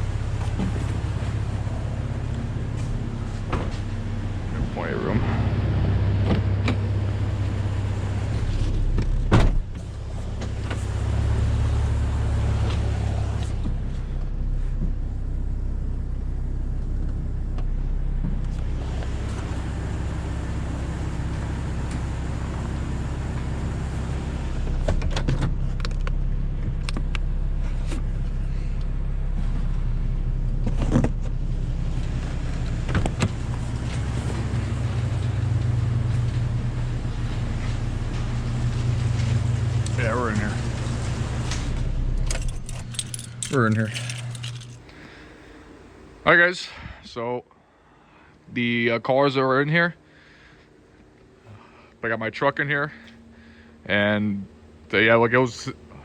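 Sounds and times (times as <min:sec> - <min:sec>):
vehicle engine running: 0:00.0 - 0:46.5.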